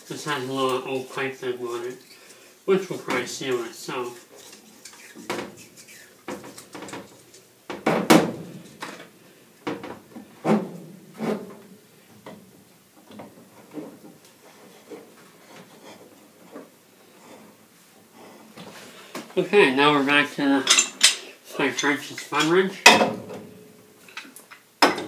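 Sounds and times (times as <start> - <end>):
knocks and clunks of pipe fittings: 6.3 - 14.2, 22.8 - 23.4, 24.2 - 25.0.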